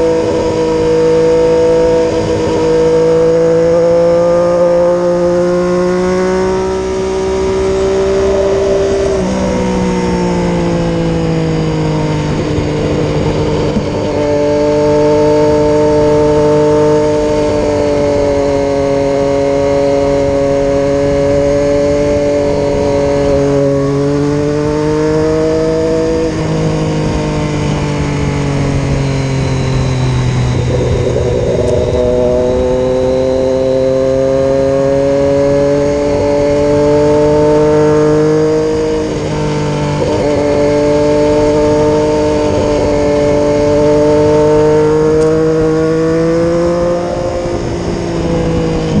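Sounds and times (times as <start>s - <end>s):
motorcycle engine running: 0.0s - 49.0s
wind and road noise: 0.0s - 49.0s.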